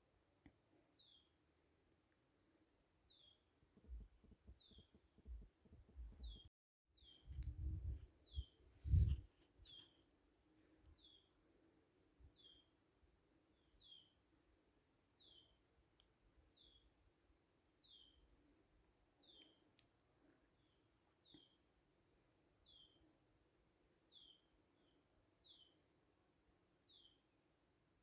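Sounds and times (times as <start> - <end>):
low rumbling thumps: 7.3 - 9.2.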